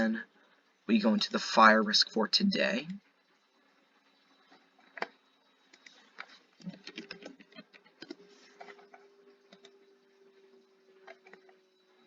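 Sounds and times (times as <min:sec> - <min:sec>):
faint steady hum: 0:00.0 - 0:12.0
computer keyboard and mouse clicks: 0:04.9 - 0:08.9.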